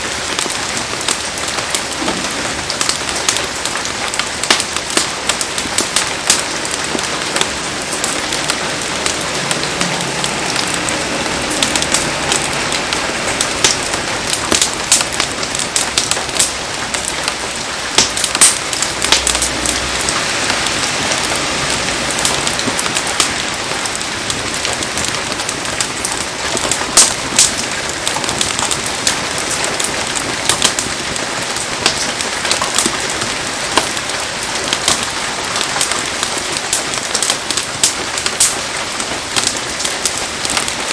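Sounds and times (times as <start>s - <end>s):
heavy rain: 0.0s - 40.9s
rain drops clicking: 0.0s - 40.9s.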